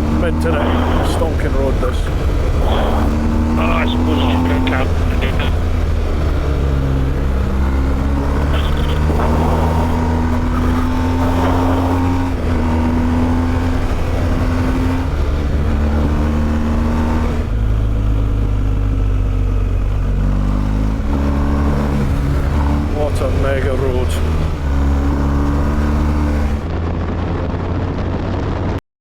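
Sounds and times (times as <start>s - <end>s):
motorcycle engine revving: 0.0s - 27.1s
rush of riding noise: 0.0s - 28.8s.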